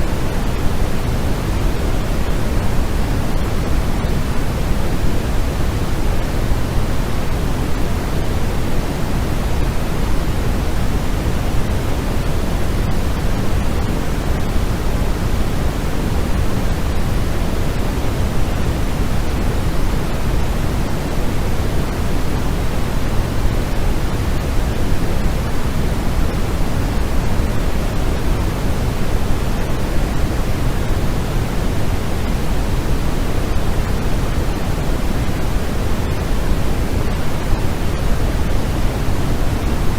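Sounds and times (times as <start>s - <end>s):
deep steady hiss: 0.0s - 39.9s.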